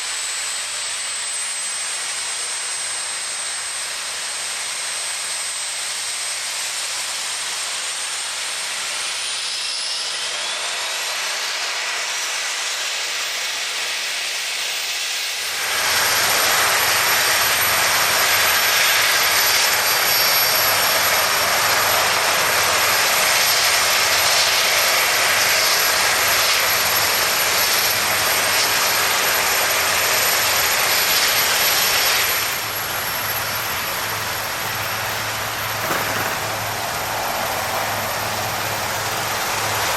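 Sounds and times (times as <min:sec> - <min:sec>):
helicopter flying by: 0:15.4 - 0:39.9.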